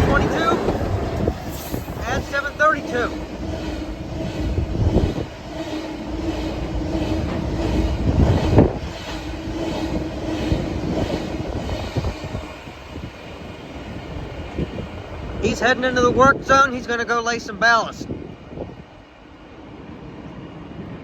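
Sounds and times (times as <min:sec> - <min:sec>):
train wheels clacking over rail joints: 0:00.0 - 0:14.9.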